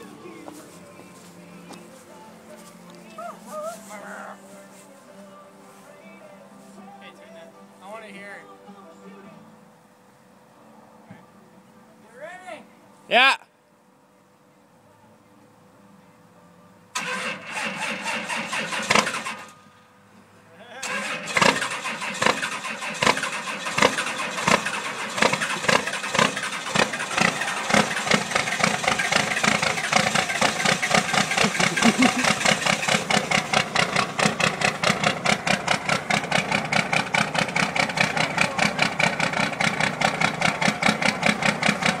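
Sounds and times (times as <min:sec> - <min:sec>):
diesel engine idling rough: 0:00.0 - 0:01.6, 0:20.8 - 0:42.0.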